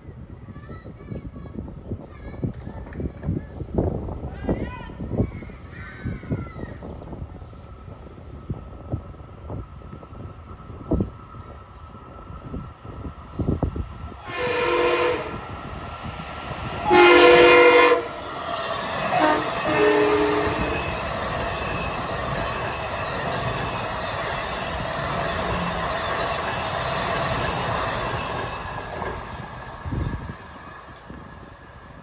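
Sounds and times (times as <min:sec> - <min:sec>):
train wheels clattering on rail: 0:01.9 - 0:05.6, 0:18.0 - 0:31.5
train horn blasts: 0:14.2 - 0:15.5, 0:16.8 - 0:18.2, 0:19.1 - 0:20.9.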